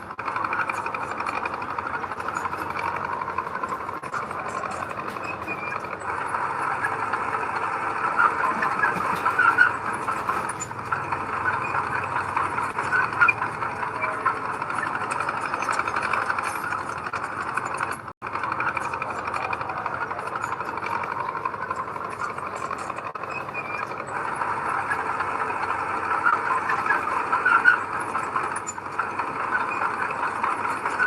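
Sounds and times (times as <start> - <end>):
diesel machinery engine clattering: 0.0 - 31.0.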